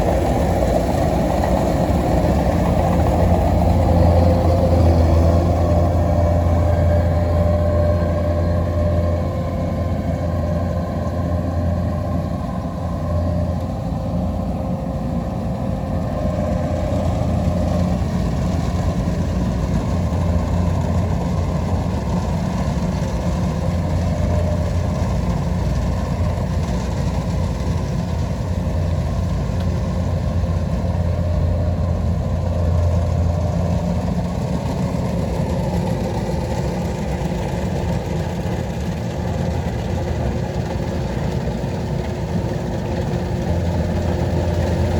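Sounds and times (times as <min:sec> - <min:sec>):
combine harvester engine hum: 0:00.0 - 0:44.9.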